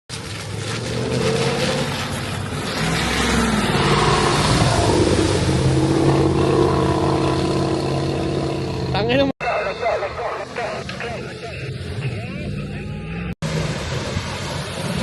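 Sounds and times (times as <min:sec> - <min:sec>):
motor vehicle engine running: 0:00.1 - 0:09.3
rush of traffic noise: 0:00.1 - 0:15.0.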